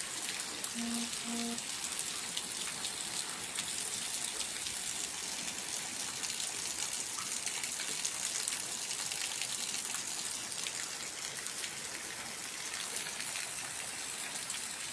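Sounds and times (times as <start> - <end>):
steady rain falling: 0.0 - 14.9.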